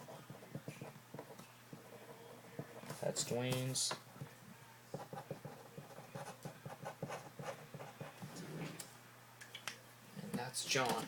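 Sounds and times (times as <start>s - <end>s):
pen writing on paper: 5.0s - 8.2s.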